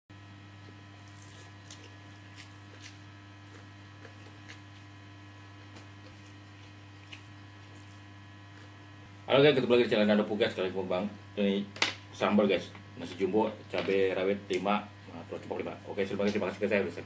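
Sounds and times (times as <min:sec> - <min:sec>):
low electrical hum: 0:00.1 - 0:17.0
mouth chewing rice: 0:00.6 - 0:08.9.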